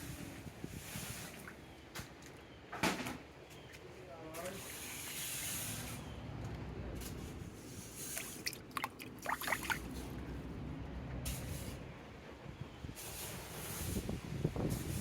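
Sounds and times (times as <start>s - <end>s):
water rushing: 8.6s - 10.0s
low rumbling wind: 9.8s - 15.0s.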